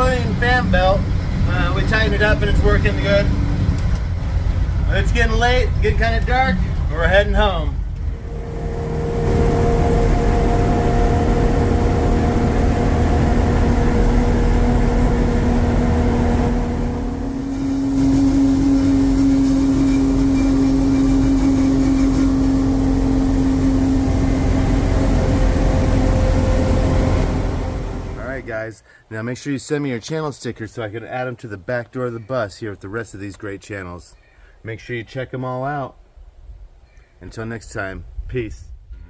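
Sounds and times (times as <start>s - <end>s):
bus engine running: 0.0s - 4.9s, 6.6s - 28.5s
steady whine: 7.0s - 28.5s.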